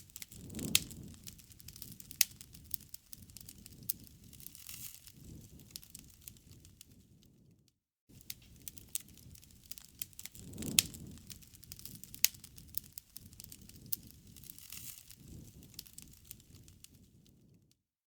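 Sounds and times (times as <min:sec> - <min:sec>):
wood fire crackling: 0:00.0 - 0:17.7.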